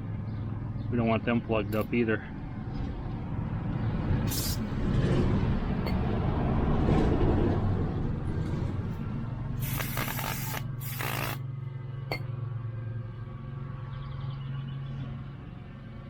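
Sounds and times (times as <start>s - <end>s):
aerosol can hissing: 4.3s - 4.6s, 9.6s - 11.4s.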